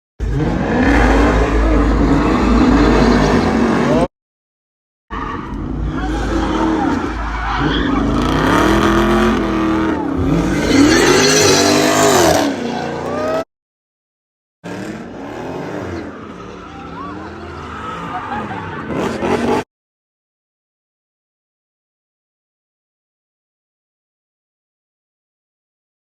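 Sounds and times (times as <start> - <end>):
car engines revving: 0.2 - 4.1, 5.1 - 13.5, 14.6 - 19.7
tyre squeal: 10.3 - 12.5.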